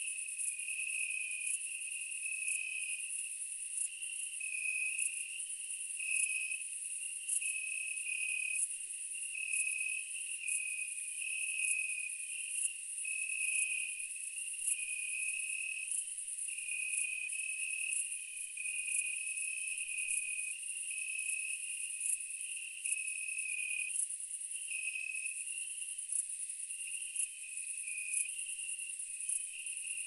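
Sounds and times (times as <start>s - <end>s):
insect trill: 9.4s - 30.0s.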